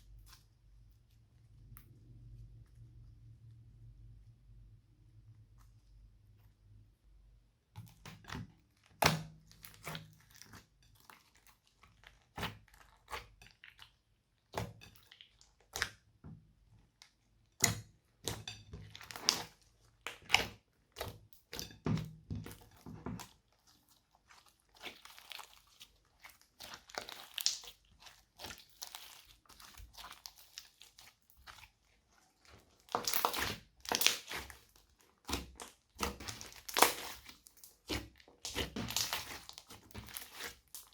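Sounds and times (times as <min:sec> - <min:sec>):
hands squeezing slime: 0:17.5 - 0:21.8, 0:22.4 - 0:40.9
beads crunching and popping: 0:32.8 - 0:40.9.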